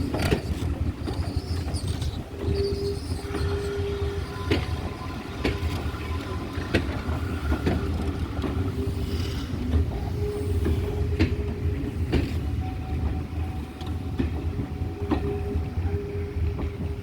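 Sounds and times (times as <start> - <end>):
wheels clicking over rail joints: 0.0 - 8.9
wheels squealing: 0.0 - 9.0
train rolling past: 0.0 - 17.0.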